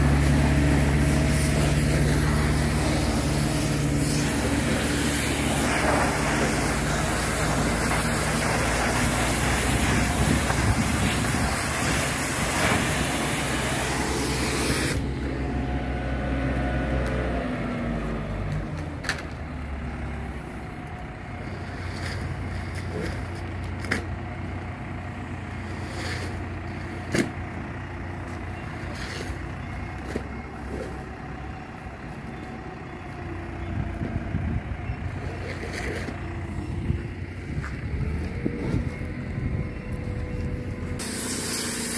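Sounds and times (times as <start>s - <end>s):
engine running: 0.0s - 41.9s
loud hissing: 0.2s - 15.0s, 41.0s - 41.9s.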